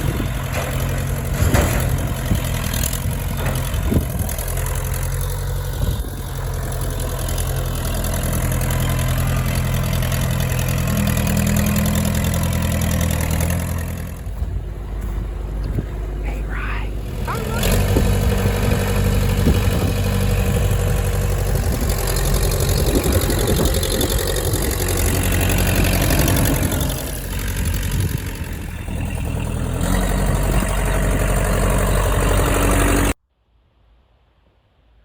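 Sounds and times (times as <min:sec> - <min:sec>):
knocks and clatter: 0:00.0 - 0:15.8
heavy machinery engine running: 0:00.0 - 0:33.2.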